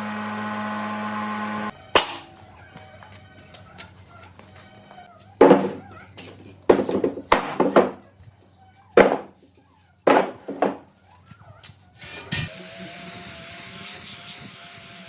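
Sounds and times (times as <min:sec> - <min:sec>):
heavy blows on wood: 0:09.0 - 0:09.4, 0:10.1 - 0:10.8.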